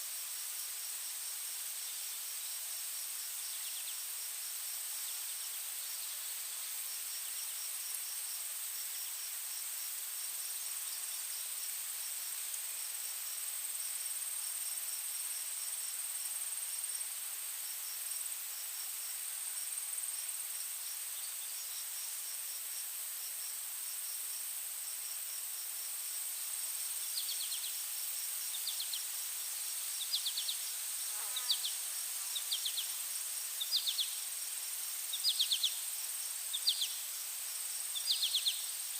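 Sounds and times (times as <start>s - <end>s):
rapid cricket chirps: 0.0s - 38.9s.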